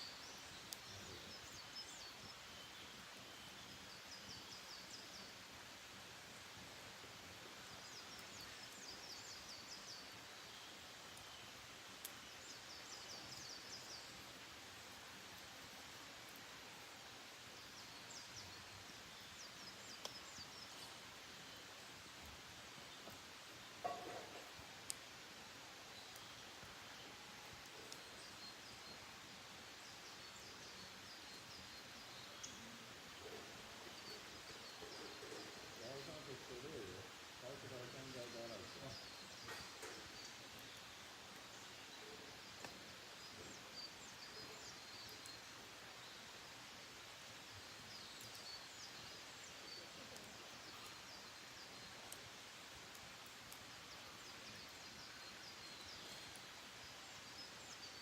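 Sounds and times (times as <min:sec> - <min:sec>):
quiet outdoor hiss: 0:00.0 - 0:58.0
distant songbird singing: 0:17.4 - 0:25.2, 0:25.8 - 0:58.0.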